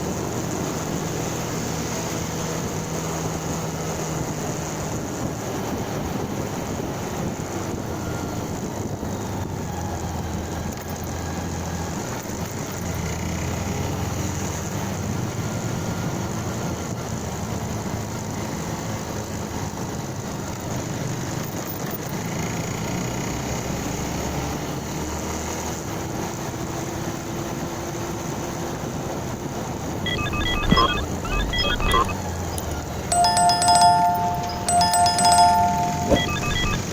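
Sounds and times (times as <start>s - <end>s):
wind and road noise: 0.0s - 36.9s
beeping tones: 30.0s - 36.9s.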